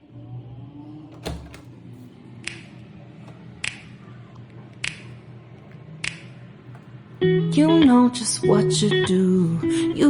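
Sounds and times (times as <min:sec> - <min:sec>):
faint low hum: 0:00.0 - 0:10.0
finger snaps: 0:03.6 - 0:03.9, 0:04.8 - 0:05.1, 0:06.0 - 0:06.3.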